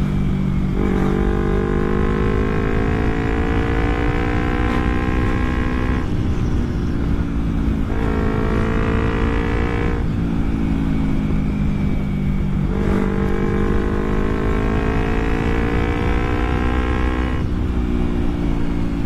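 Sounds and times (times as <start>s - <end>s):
motorcycle engine accelerating: 0.0s - 19.0s
wind buffeting microphone: 2.2s - 19.0s.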